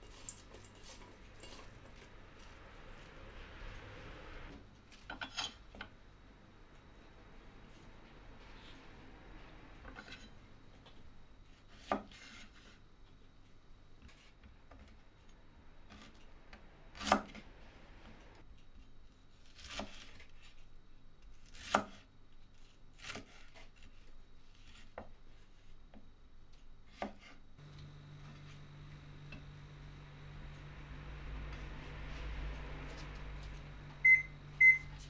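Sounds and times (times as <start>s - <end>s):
steady low hum: 27.6s - 35.0s.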